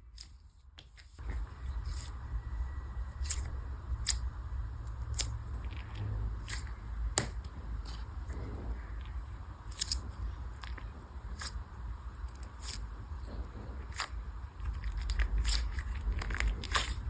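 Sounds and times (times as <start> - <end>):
low handling rumble: 1.2 - 17.0
squishy toy clicks and crackles: 3.2 - 4.3, 9.7 - 11.6, 13.9 - 17.0.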